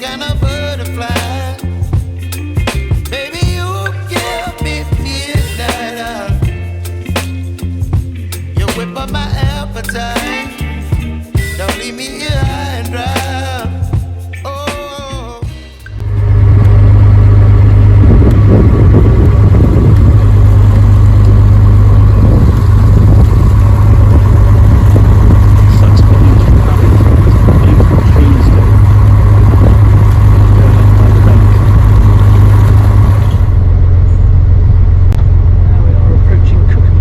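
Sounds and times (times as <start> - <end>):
boat engine droning: 15.9 - 37.0.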